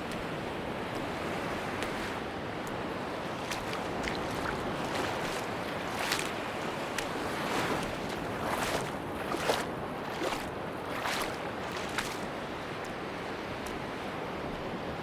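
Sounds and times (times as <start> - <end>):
surf washing onto beach: 0.0 - 14.4.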